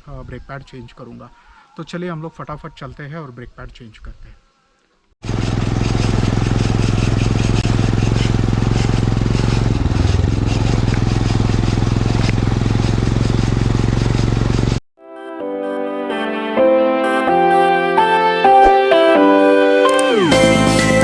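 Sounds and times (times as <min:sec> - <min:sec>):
motorcycle engine running: 0:05.2 - 0:14.8.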